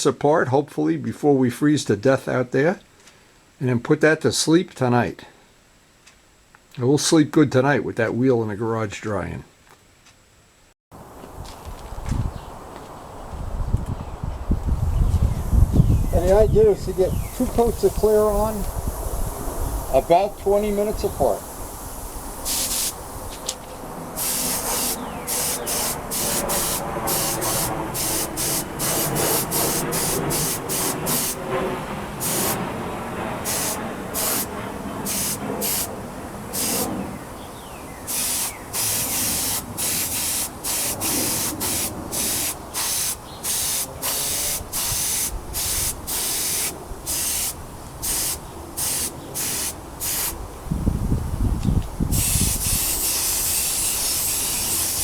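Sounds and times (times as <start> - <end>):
spray gun hissing bursts: 15.5 - 23.4, 24.1 - 31.5, 32.2 - 32.7, 33.4 - 37.0, 38.1 - 50.4, 52.2 - 55.0.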